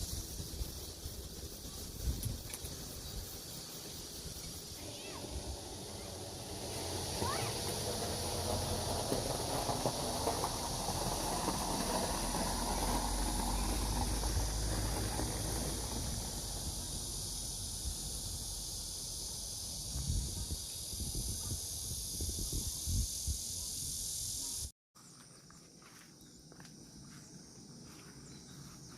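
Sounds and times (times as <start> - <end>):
wind rumbling on microphone: 0.0 - 3.4, 19.8 - 24.2
insects chirping: 0.0 - 28.9.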